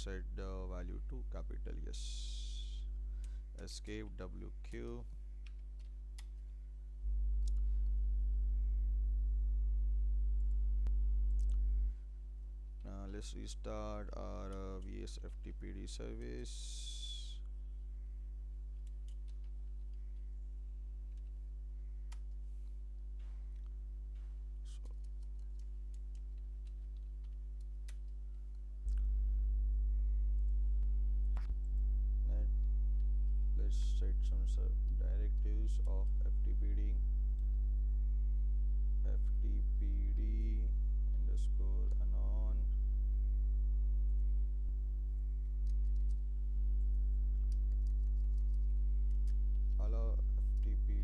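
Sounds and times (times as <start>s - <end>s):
low electrical hum: 0.0s - 51.0s
faint clicks: 24.7s - 29.1s, 46.8s - 49.9s
keyboard clicks: 47.4s - 49.8s.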